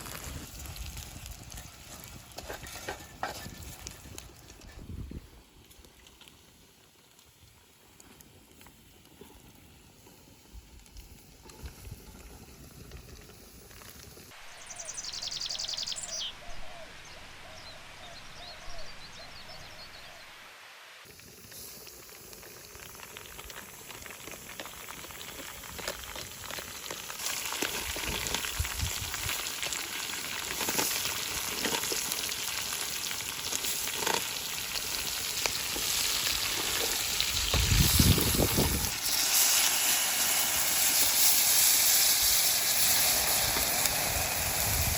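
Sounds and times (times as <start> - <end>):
high chirps: 14.4 - 20.4
meat sizzling in a pan: 21.1 - 44.9.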